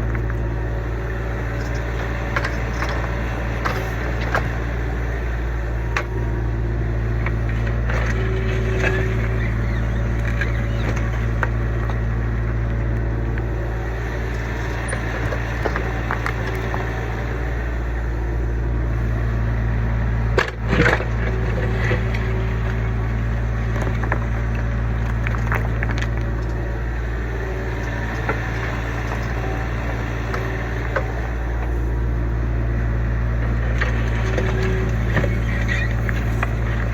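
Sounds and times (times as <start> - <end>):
excavator diesel engine running: 0.0 - 36.9
knocks and clanks from digging: 1.5 - 4.7.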